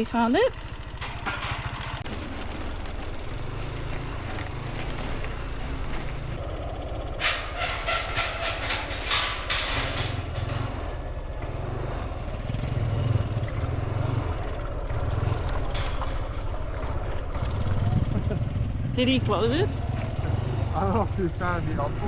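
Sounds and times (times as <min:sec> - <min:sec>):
motorbike engine idling: 0:00.0 - 0:22.0
sharp clicks and rattles: 0:00.7 - 0:06.4, 0:07.2 - 0:10.9, 0:14.4 - 0:20.3.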